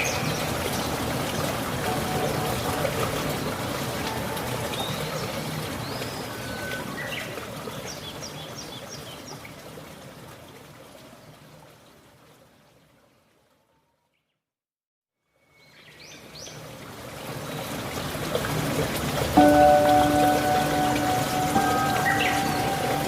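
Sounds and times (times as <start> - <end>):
birds chirping: 0.0 - 7.4, 19.4 - 23.0
trickling stream: 0.0 - 13.8, 15.5 - 23.0.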